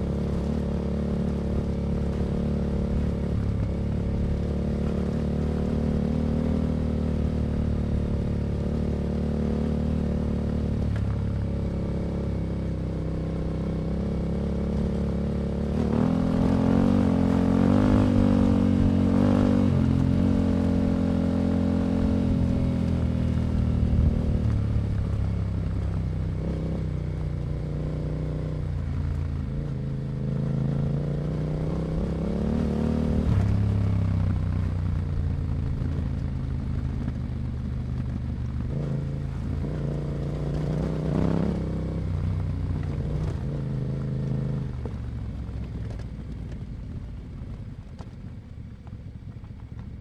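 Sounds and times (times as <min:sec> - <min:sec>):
motorcycle engine revving: 0:00.0 - 0:46.1.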